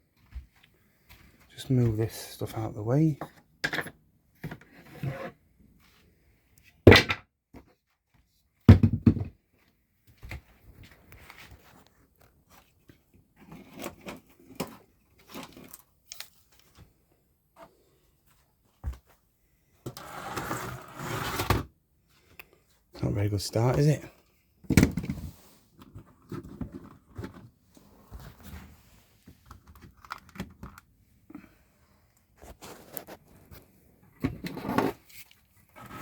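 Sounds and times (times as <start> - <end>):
scraping and rustling: 32.4 - 33.7.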